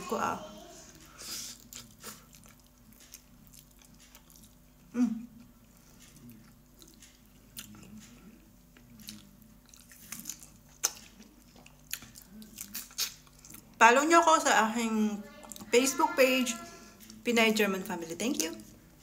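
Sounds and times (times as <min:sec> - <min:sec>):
chewing and lip smacks: 0:01.5 - 0:13.8.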